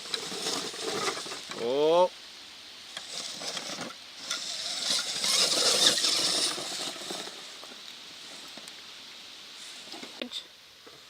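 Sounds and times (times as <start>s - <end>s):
electric motor and gears whining: 2.9s - 7.7s.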